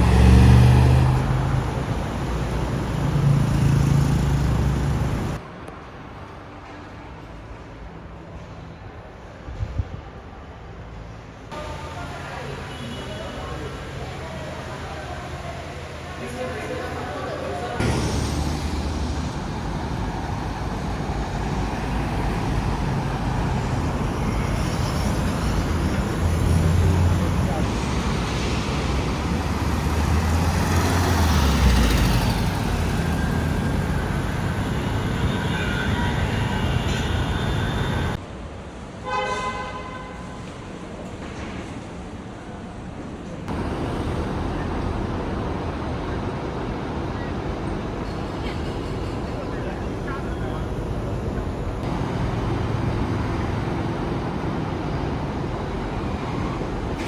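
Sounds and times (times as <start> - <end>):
low engine rumble: 0.0 - 5.4, 11.5 - 38.2, 43.5 - 56.9
road traffic: 0.0 - 57.0.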